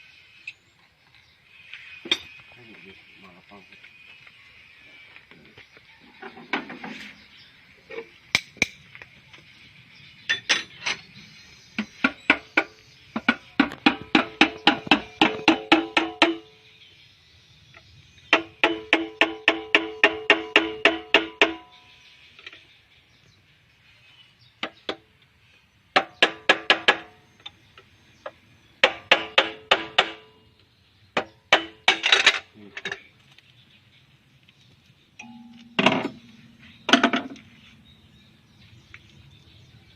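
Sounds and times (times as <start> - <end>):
struck steel ringing: 35.2 - 37.3.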